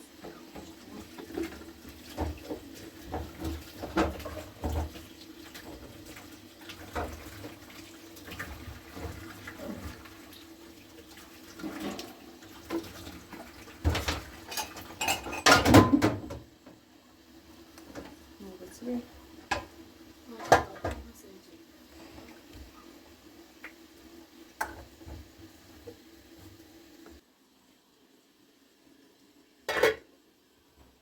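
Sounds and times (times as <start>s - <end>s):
kitchenware clattering in water: 0.2s - 10.1s, 11.5s - 16.5s, 19.4s - 21.2s, 24.6s - 25.0s, 29.7s - 30.1s.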